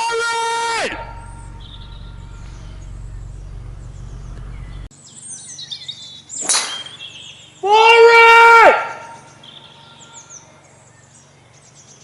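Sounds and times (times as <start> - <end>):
low steady rumble: 0.6 - 4.9
small birds chirping: 0.9 - 7.8, 8.9 - 12.0.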